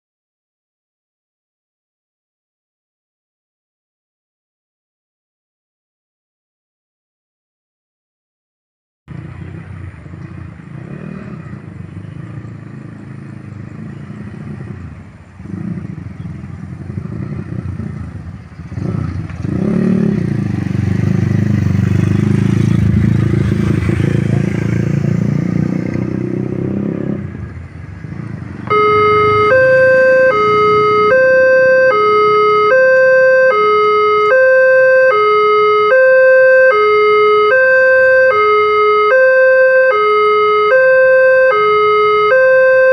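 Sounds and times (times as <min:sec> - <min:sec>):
motorcycles passing: 0:09.1 - 0:42.9
two-tone crossing warning alarm: 0:28.6 - 0:42.9.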